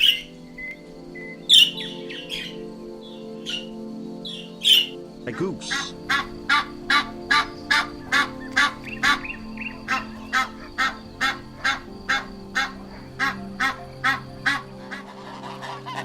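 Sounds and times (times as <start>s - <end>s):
goose honking: 5.6s - 16.0s.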